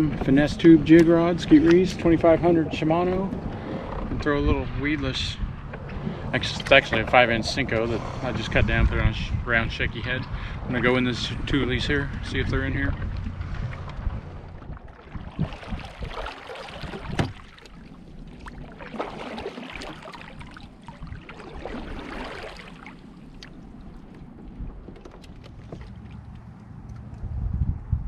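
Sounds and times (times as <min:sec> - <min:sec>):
water swishing: 0:00.0 - 0:27.1
knocks on kayak: 0:17.0 - 0:17.4.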